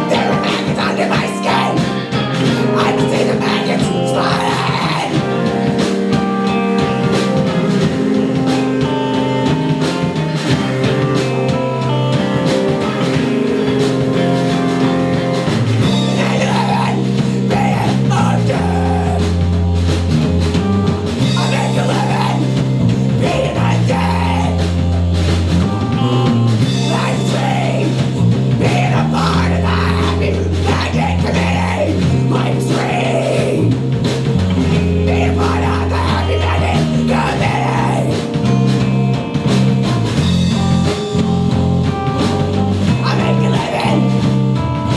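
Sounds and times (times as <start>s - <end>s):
person singing: 0.0s - 13.2s, 15.1s - 19.5s, 21.2s - 24.9s, 25.9s - 33.8s, 34.7s - 38.6s, 42.9s - 44.9s
bass line: 0.0s - 44.9s
drum kit: 0.0s - 44.9s
electric guitar: 0.0s - 44.9s.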